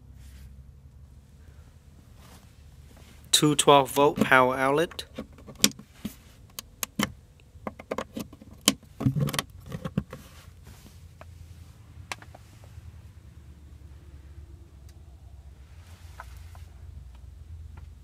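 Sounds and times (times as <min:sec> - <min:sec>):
low hum inside car: 0:00.0 - 0:18.0
clicks and knocks of car fittings: 0:05.0 - 0:10.2.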